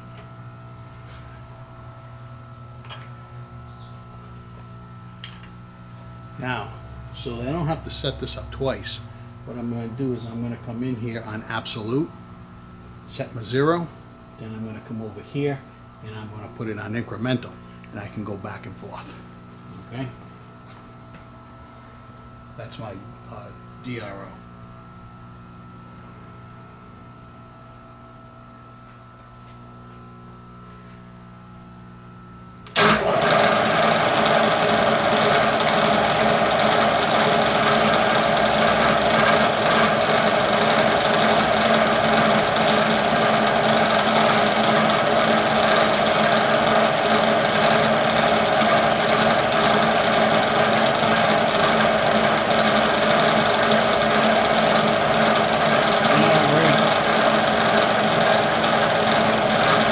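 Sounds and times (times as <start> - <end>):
low steady hum: 0.0 - 32.9
machine motor running: 32.7 - 59.9.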